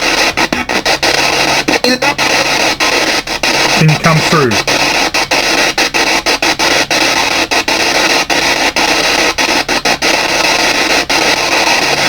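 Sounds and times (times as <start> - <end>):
radio static hiss: 3.8 - 4.7.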